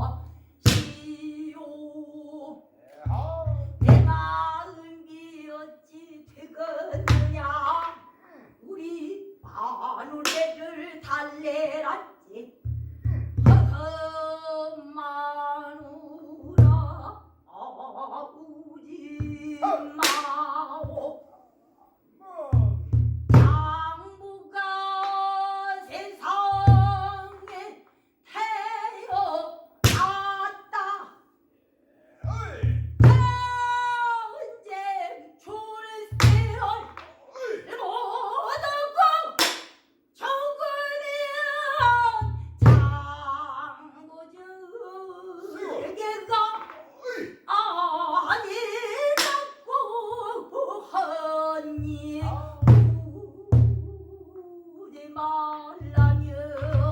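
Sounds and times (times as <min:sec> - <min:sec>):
woman singing long wavering notes: 0:00.9 - 0:07.9, 0:13.7 - 0:21.3, 0:40.2 - 0:56.9
barrel drum strikes: 0:32.3 - 0:33.5.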